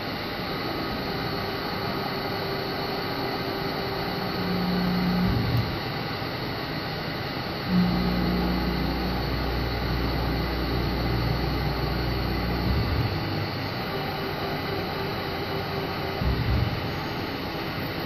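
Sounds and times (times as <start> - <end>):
deeper machine drone: 0.0 - 18.0
machine hum: 0.0 - 18.0
brief low surge: 7.7 - 13.8.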